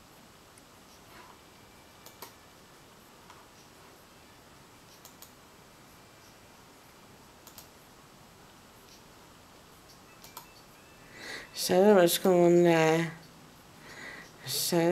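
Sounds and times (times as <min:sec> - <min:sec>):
computer mouse clicks: 0:02.0 - 0:02.4, 0:04.9 - 0:05.4, 0:07.4 - 0:07.8, 0:09.9 - 0:10.6.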